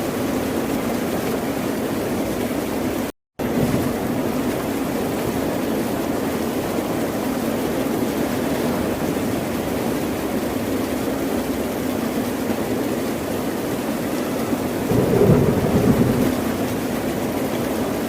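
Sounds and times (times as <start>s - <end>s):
ocean waves rushing: 14.9s - 18.0s.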